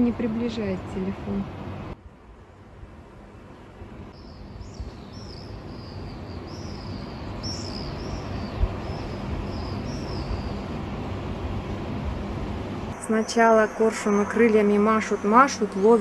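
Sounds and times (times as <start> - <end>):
low steady rumble: 0.0 - 4.2, 8.5 - 16.0.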